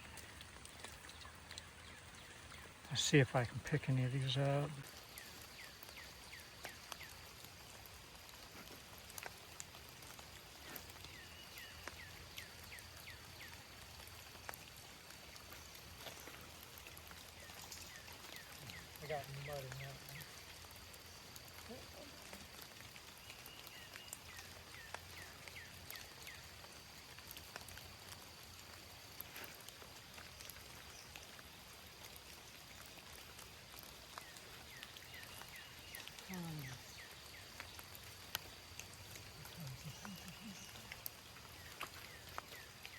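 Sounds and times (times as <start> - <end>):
light rain patter: 0.0 - 42.9
small water splashes: 0.0 - 42.9
water trickling and dripping: 0.0 - 42.9.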